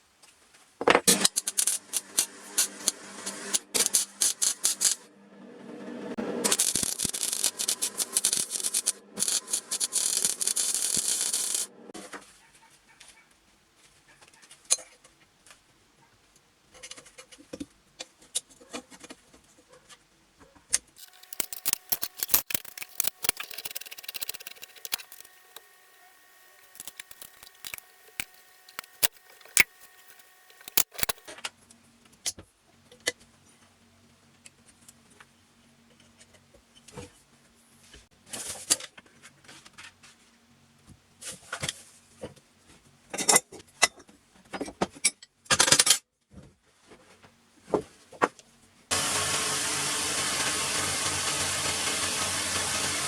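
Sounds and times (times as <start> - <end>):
metal parts and tools clinking: 6.5 - 11.6, 21.0 - 31.3.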